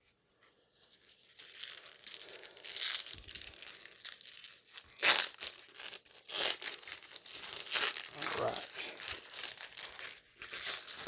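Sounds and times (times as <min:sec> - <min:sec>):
card pack wrapper crinkling: 0:01.0 - 0:11.0
loud wrapper crackle: 0:01.0 - 0:11.0.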